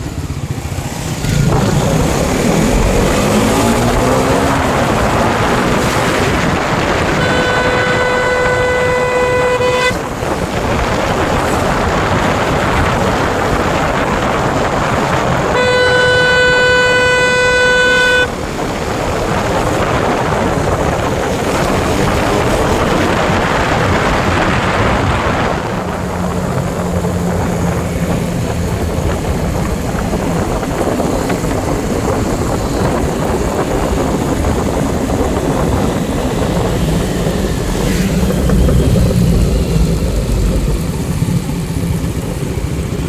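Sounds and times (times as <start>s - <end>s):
motorcycle engine revving: 0.0s - 43.0s
wind noise: 0.0s - 43.0s
vehicle horn blast: 4.1s - 10.5s, 15.4s - 18.7s.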